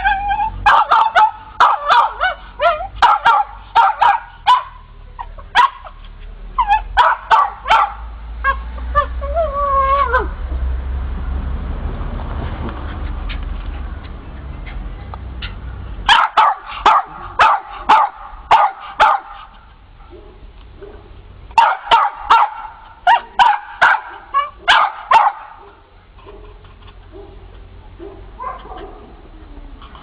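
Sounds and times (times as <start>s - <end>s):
dog barking: 0.6s - 4.9s, 5.5s - 6.0s, 6.6s - 8.6s, 16.1s - 19.5s, 20.1s - 29.2s.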